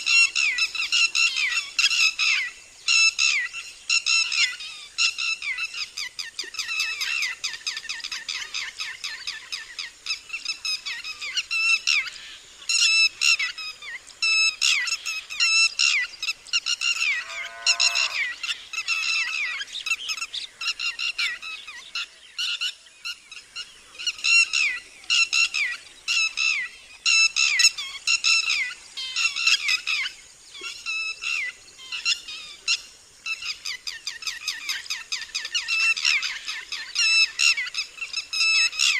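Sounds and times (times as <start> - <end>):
lapwing alarm call: 12.7 - 21.6.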